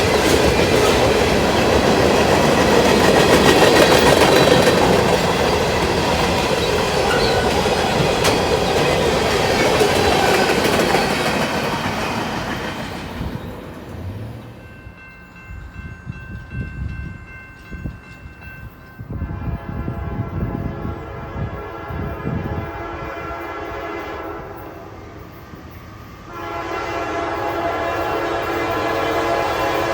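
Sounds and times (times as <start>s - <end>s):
distant train horn: 0.0s - 13.0s, 19.1s - 25.3s, 26.2s - 29.9s
train wheels rumbling on rails: 0.0s - 29.9s.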